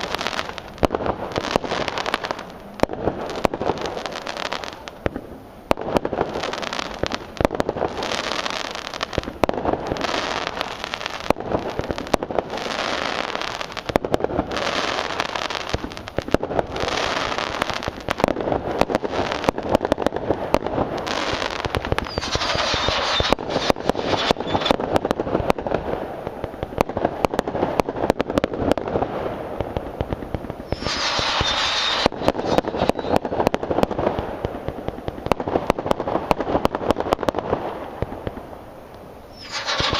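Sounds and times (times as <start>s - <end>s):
fireworks bangs: 0.0s - 39.9s
fireworks crackling: 0.0s - 39.9s
high whistling tone: 22.0s - 23.4s, 24.2s - 24.8s, 30.7s - 33.2s, 39.3s - 39.9s.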